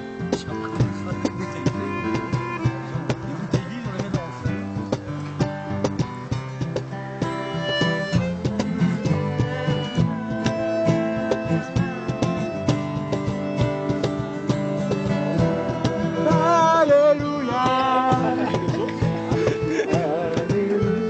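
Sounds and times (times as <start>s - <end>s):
acoustic guitar strumming: 0.0s - 21.0s
person singing: 8.3s - 12.8s, 13.5s - 21.0s.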